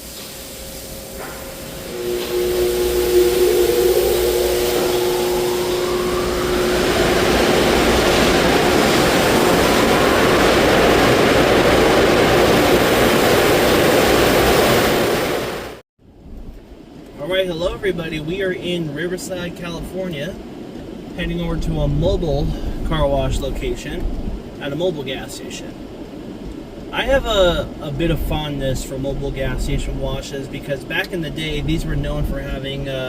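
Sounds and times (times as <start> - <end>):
air dryer blowers whining: 0.0 - 15.8.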